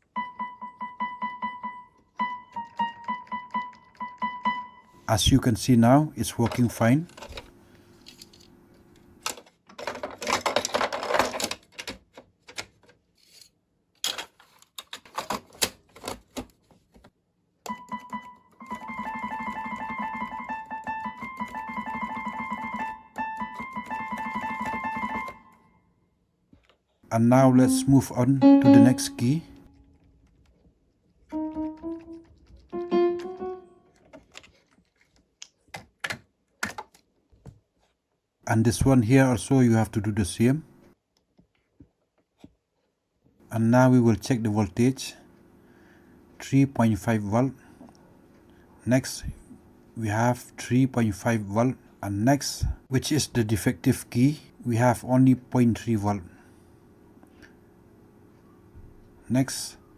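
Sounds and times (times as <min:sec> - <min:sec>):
keyboard repeated notes: 0:00.0 - 0:05.0, 0:17.7 - 0:25.6, 0:27.4 - 0:29.6, 0:31.3 - 0:33.8.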